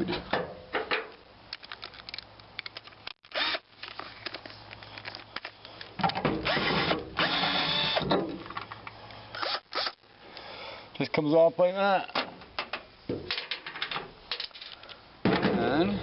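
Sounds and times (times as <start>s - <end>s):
power drill motor: 3.3s - 3.6s, 6.4s - 8.0s, 9.4s - 10.0s.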